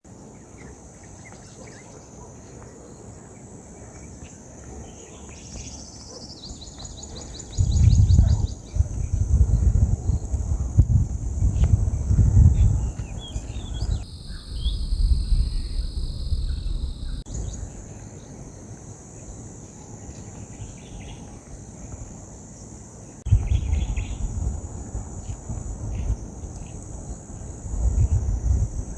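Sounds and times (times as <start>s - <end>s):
insects chirring: 0.1s - 28.9s
bird chirps: 0.4s - 10.3s, 11.6s - 18.6s
wind rumbling on microphone: 3.6s - 22.3s, 23.2s - 28.9s.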